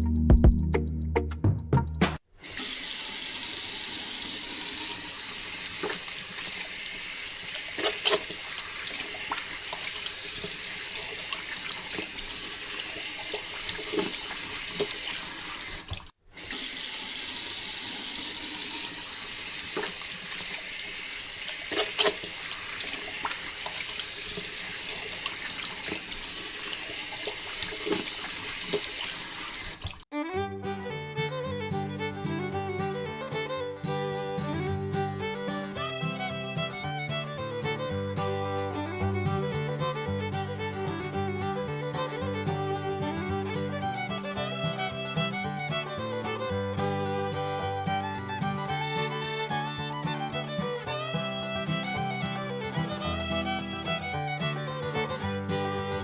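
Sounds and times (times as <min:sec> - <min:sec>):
water pouring from pipe: 0:02.4 - 0:30.0
water splashes: 0:02.4 - 0:30.1.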